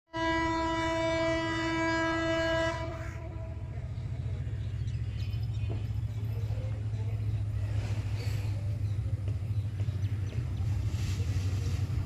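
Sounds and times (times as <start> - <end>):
locomotive horn blast: 0.1 - 3.9
train engine and wheels rumbling: 0.1 - 12.0.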